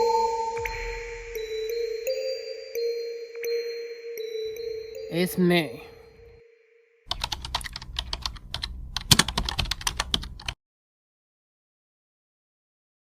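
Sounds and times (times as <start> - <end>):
computer keyboard typing: 7.1 - 10.6.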